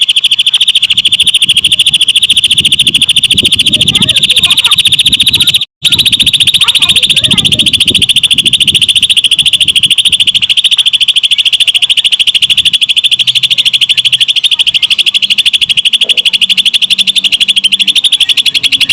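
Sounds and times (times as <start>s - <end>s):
bird singing rapid high trill: 0.0s - 18.9s.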